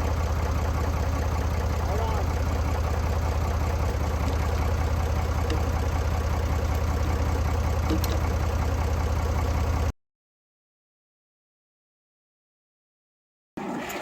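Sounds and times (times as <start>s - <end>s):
tractor engine idling: 0.0s - 9.9s.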